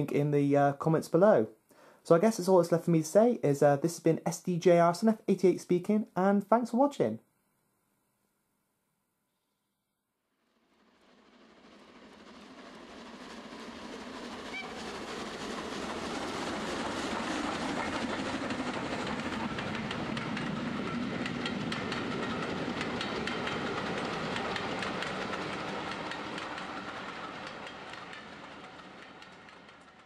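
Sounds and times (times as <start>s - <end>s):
train wheels clicking over rail joints: 13.0s - 30.0s.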